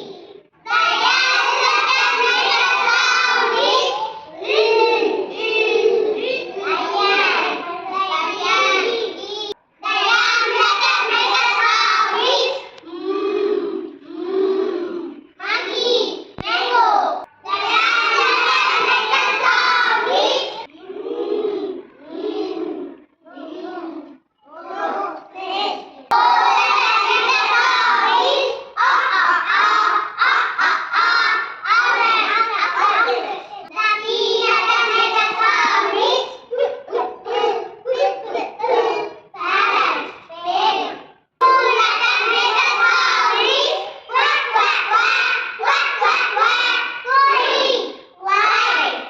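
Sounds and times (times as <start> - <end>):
young children chanting: 0.0 - 49.0.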